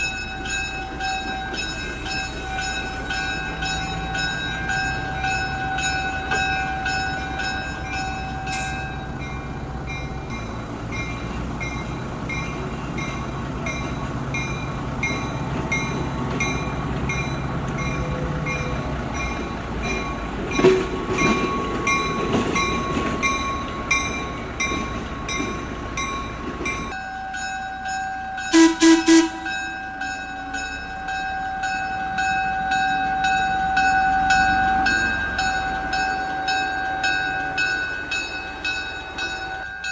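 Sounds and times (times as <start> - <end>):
train running with high whine: 0.0 - 39.9
train horn blasts: 28.5 - 29.9.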